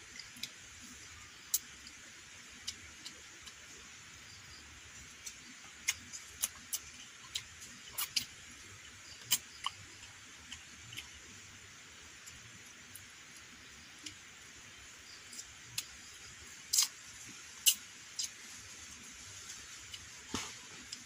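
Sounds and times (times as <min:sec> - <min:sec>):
steady high hiss: 0:00.0 - 0:21.0
sharp ticks and clicks: 0:01.3 - 0:17.0.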